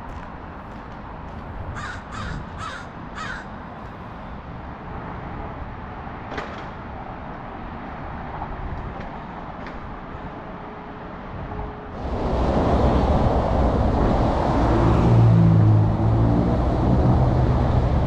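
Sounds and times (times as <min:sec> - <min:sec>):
low outdoor rumble: 0:12.0 - 0:18.0.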